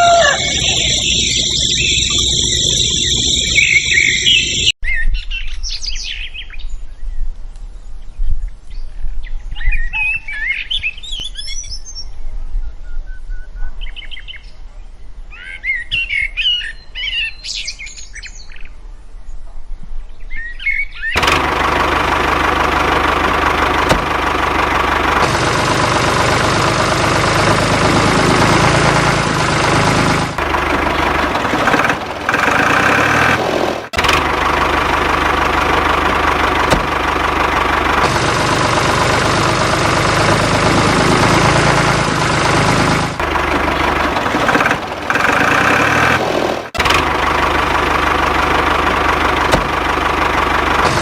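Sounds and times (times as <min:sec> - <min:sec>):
tractor engine knocking: 0:00.3 - 0:04.7, 0:21.2 - 0:51.0.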